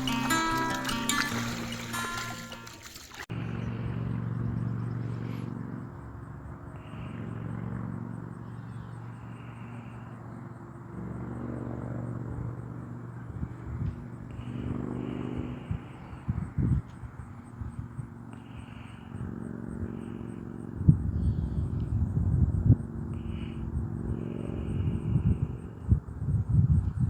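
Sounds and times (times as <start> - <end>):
vehicle engine running: 0.0 - 16.2.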